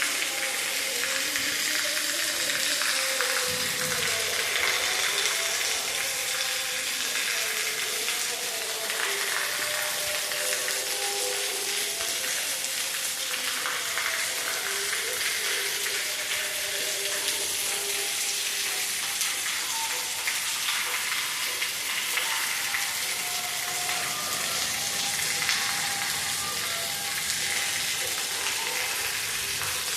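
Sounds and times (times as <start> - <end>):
rain pattering: 0.0 - 29.9.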